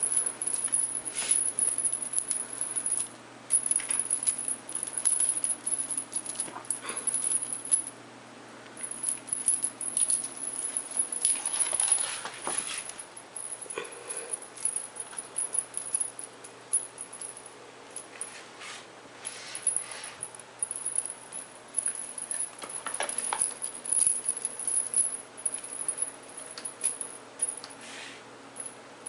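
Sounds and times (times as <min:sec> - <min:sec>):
small rattles and clicks: 0:20.6 - 0:27.8.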